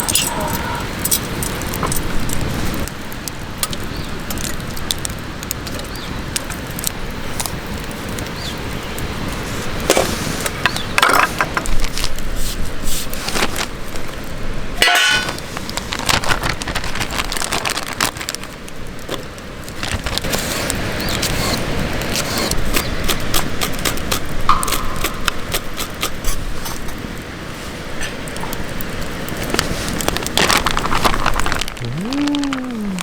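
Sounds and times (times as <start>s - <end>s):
metal cookware clinking and scraping: 0.0s - 1.6s, 14.8s - 15.4s.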